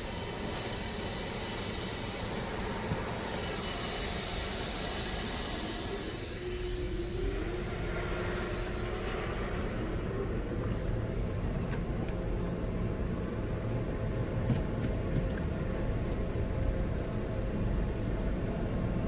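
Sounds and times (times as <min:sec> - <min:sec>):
water spray hissing: 0:00.0 - 0:09.4.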